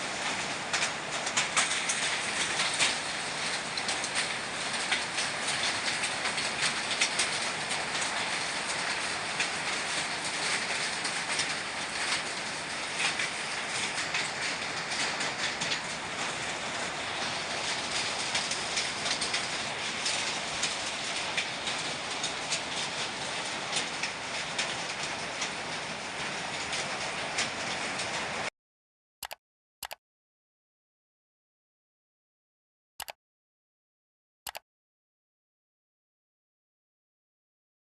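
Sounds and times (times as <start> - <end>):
rain: 0.0 - 28.5.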